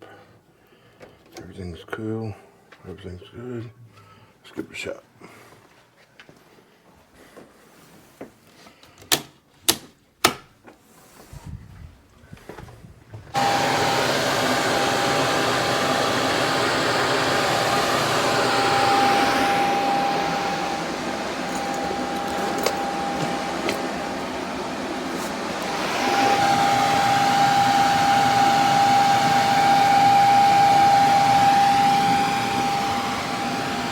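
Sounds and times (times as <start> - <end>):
furnace blower rushing air: 13.3 - 33.9.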